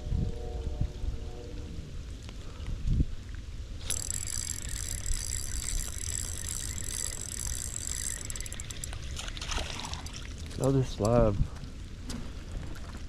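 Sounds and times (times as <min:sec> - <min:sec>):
wind rumble on microphone: 0:00.0 - 0:03.8, 0:10.4 - 0:13.0
fishing reel whirring: 0:03.8 - 0:10.5
reel clicks: 0:03.8 - 0:11.2.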